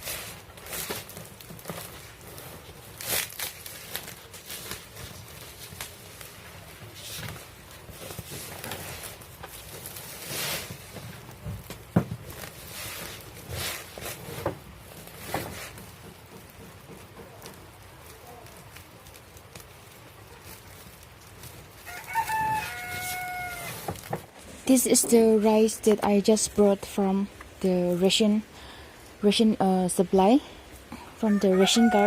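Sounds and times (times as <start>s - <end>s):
rustling: 0.0s - 32.0s
footsteps: 10.6s - 27.7s.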